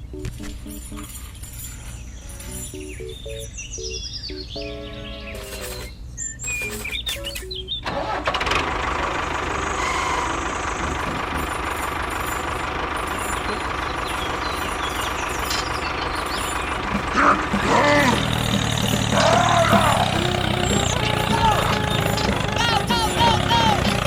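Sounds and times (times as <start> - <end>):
engine starting and running: 5.3 - 24.0.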